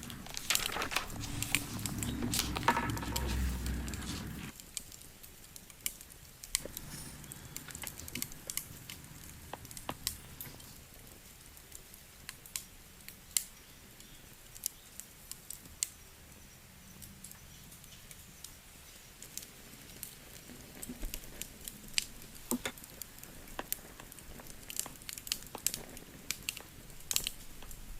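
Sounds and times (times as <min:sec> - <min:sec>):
faint low rumble: 0:00.0 - 0:04.5, 0:06.6 - 0:10.9
campfire pops and snaps: 0:01.8 - 0:10.8, 0:19.3 - 0:27.9.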